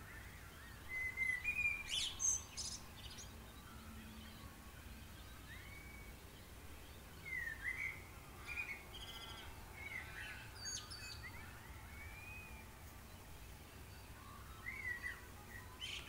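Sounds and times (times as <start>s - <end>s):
low steady hum: 0.0s - 16.0s
songbirds chirping: 0.0s - 16.0s
drawn-out bird whistle: 0.1s - 2.7s, 5.4s - 6.2s, 7.3s - 12.7s, 13.7s - 16.0s
bird trill: 7.2s - 12.7s, 13.5s - 16.0s.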